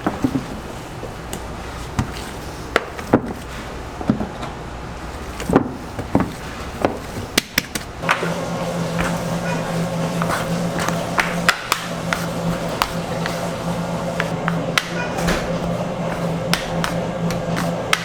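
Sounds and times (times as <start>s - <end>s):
steady machine hum: 7.9s - 18.0s.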